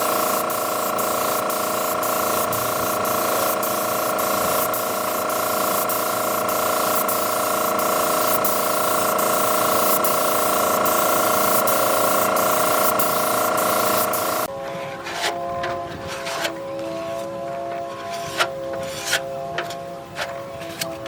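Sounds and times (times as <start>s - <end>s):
spraying hiss: 0.0s - 14.5s
steady whine: 0.0s - 20.6s.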